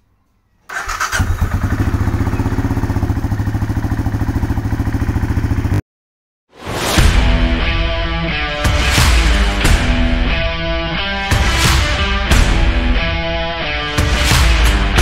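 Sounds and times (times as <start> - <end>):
motorcycle engine idling: 0.7 - 5.8
rock music with guitar: 7.0 - 15.0.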